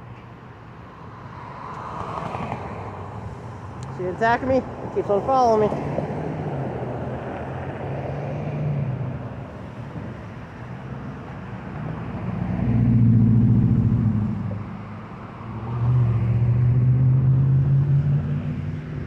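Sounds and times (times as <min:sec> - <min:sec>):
vehicle engine humming: 0:00.1 - 0:19.0.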